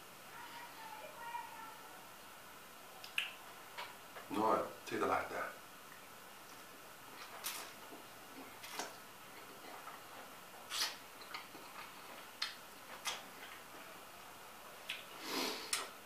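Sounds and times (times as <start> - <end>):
wet mouth clicks and smacks: 3.0 - 3.4, 10.7 - 13.6.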